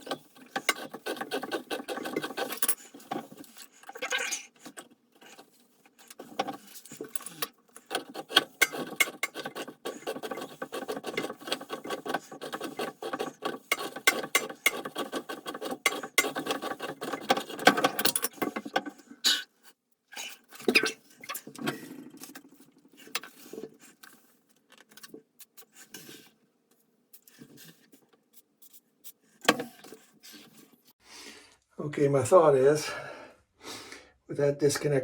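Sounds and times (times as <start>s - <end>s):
tool scraping clicks: 0.0s - 3.9s, 4.6s - 19.0s.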